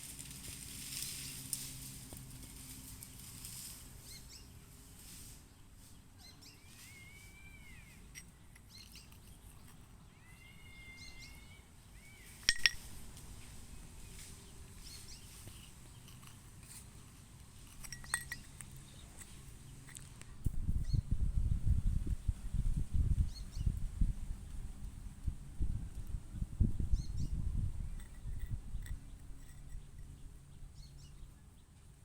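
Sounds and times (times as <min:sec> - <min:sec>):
faint background noise: 0:00.0 - 0:32.0.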